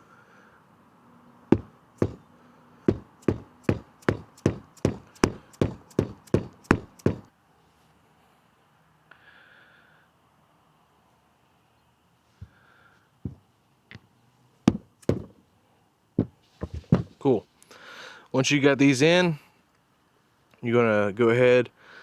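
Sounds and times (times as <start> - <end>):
sharp knocks tapping metal bushings: 1.5 - 2.3, 2.9 - 7.3, 14.7 - 15.4.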